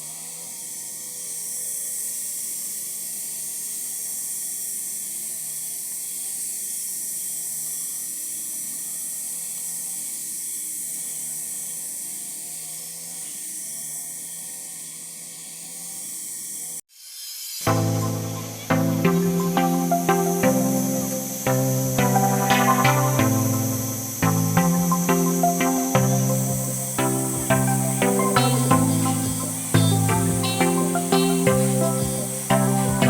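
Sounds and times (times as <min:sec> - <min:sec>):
insects chorus: 0:00.0 - 0:33.0.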